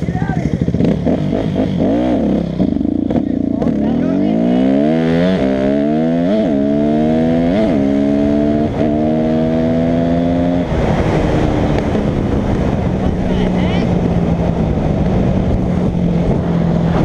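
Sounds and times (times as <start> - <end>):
dirt bike engine accelerating: 0.0 - 17.0
wind and ground rushing noise: 7.7 - 17.0.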